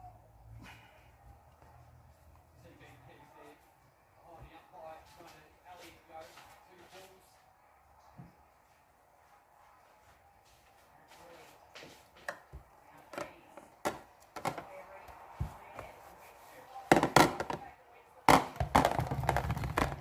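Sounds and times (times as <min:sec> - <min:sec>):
containers knocking in fridge: 0:16.9 - 0:17.6, 0:18.3 - 0:20.0.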